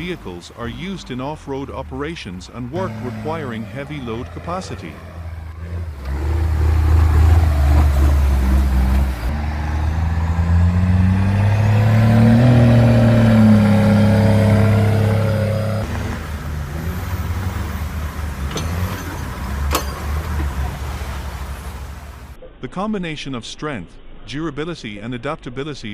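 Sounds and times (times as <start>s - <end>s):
truck diesel engine revving: 0.0s - 22.4s.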